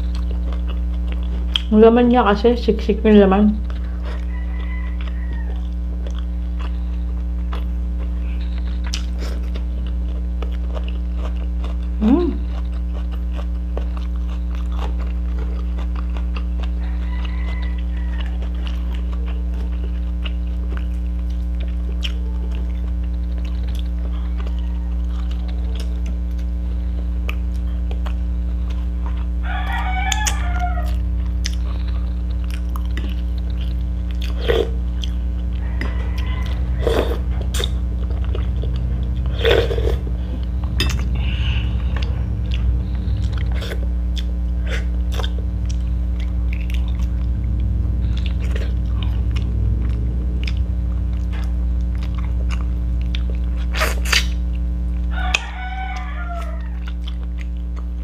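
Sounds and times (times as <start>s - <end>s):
chewing and lip smacks: 0.0s - 1.7s, 3.6s - 26.5s, 27.2s - 36.6s, 56.0s - 58.0s
low hum: 0.0s - 58.0s.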